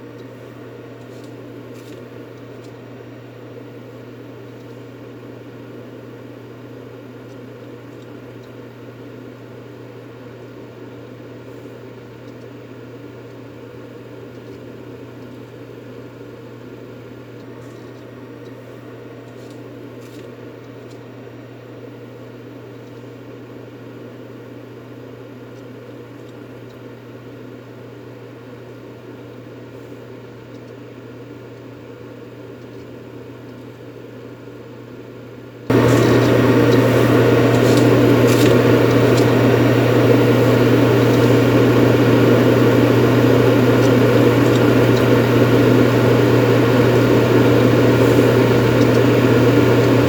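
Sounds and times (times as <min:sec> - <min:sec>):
low hum: 0:35.7 - 0:50.0
white noise hiss: 0:35.7 - 0:50.0.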